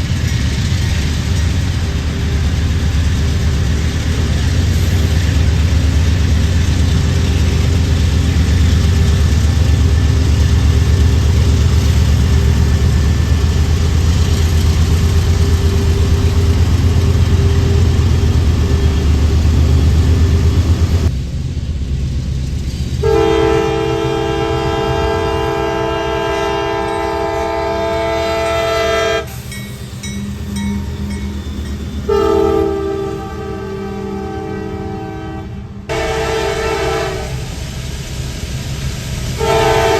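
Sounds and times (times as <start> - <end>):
low engine rumble: 0.0 - 39.9
locomotive air horn blasts: 23.0 - 29.3, 32.1 - 37.6, 39.4 - 39.9.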